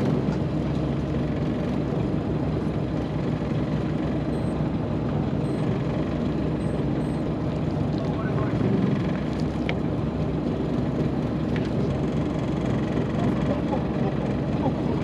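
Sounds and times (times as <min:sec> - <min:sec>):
boat engine droning: 0:00.0 - 0:15.0
faint high beeps: 0:04.3 - 0:04.6, 0:05.4 - 0:05.8.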